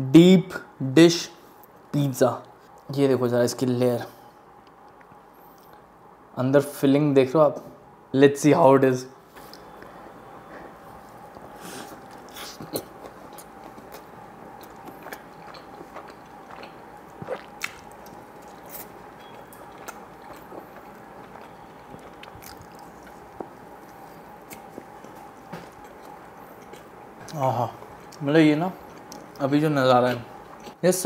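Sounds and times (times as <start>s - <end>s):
electric fan hum: 0.0s - 31.0s
chewing mouth clicks and smacks: 11.3s - 28.2s.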